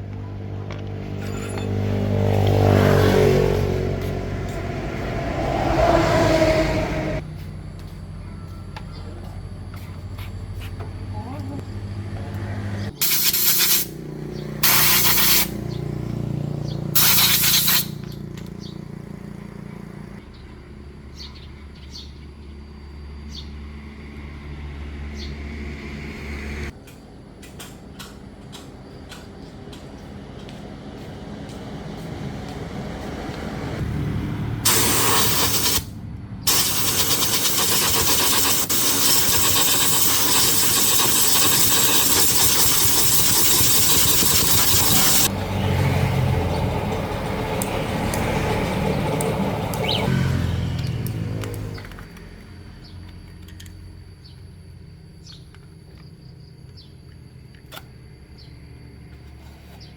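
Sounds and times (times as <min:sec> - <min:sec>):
hissing air blasts: 0:13.0 - 0:14.0, 0:14.6 - 0:15.6, 0:17.0 - 0:18.0, 0:34.6 - 0:45.3.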